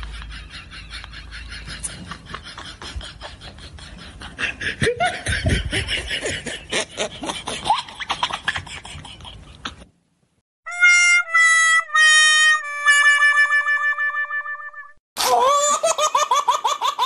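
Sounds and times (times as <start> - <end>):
laughter in quick bursts: 0.0 - 9.9.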